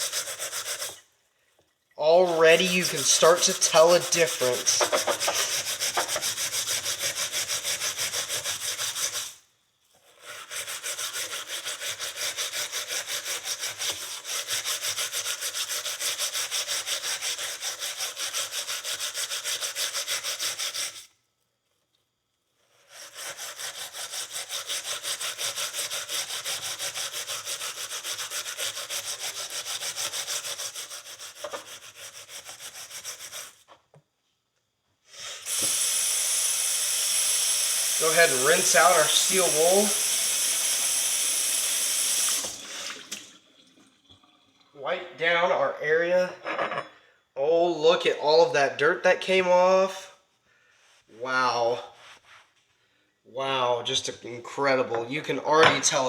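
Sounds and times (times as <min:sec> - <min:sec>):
steel wool scrubbing rusty metal: 0:00.0 - 0:01.1, 0:02.0 - 0:09.4, 0:10.1 - 0:21.0, 0:22.8 - 0:33.7, 0:38.0 - 0:40.0.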